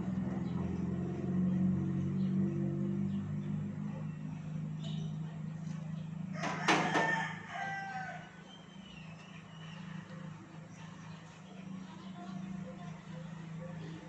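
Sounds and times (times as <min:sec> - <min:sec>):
rooster crowing: 0:06.3 - 0:08.5.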